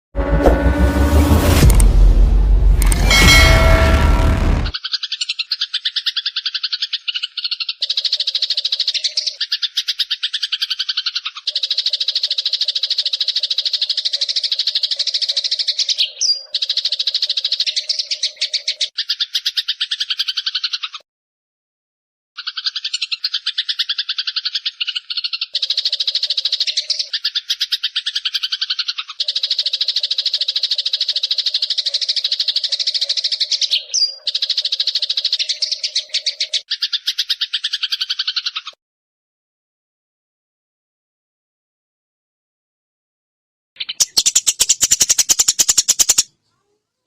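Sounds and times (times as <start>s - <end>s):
bird pulsed trill: 2.8s - 6.3s, 22.4s - 38.4s, 43.8s - 46.3s.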